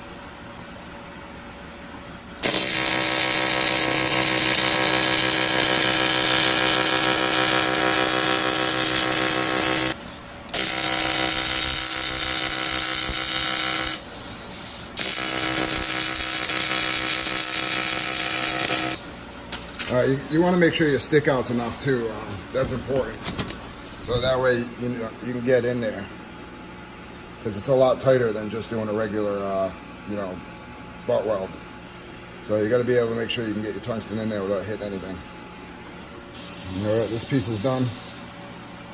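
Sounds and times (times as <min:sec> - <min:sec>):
welding arc buzzing: 0:02.4 - 0:24.7, 0:36.0 - 0:38.4.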